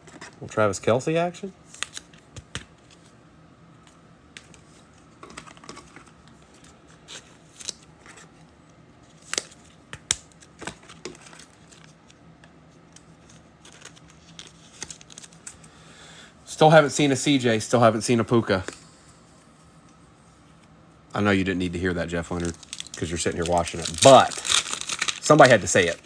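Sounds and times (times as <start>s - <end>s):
cards and wrappers rustling: 9.0s - 15.8s, 22.2s - 26.0s.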